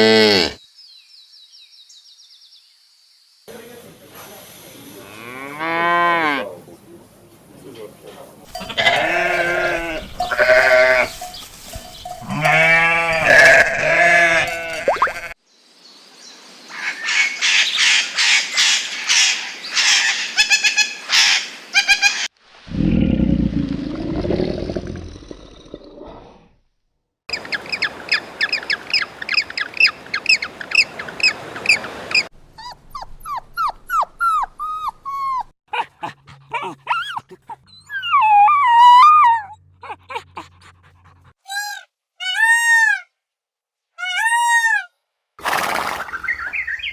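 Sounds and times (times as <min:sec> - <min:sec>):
drawn-out pitched animal calls: 0:08.5 - 0:15.4, 0:34.2 - 0:41.8
low rough animal call: 0:22.6 - 0:26.6.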